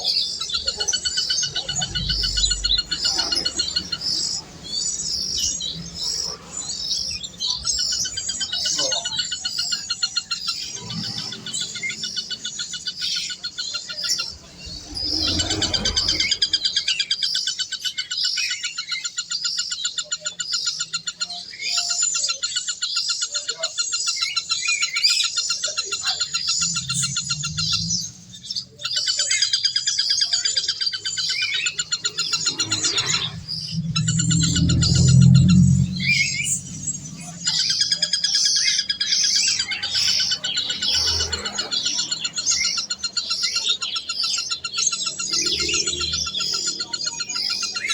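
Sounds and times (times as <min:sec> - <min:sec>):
birds chirping rapidly: 0:00.0 - 0:47.9
low rumble: 0:00.5 - 0:08.1, 0:14.1 - 0:17.2, 0:26.0 - 0:29.2, 0:31.7 - 0:38.6.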